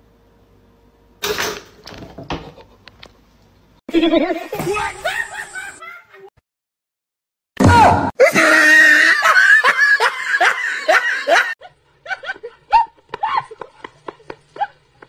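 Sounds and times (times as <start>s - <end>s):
person laughing hard: 3.9s - 6.3s, 8.2s - 14.8s.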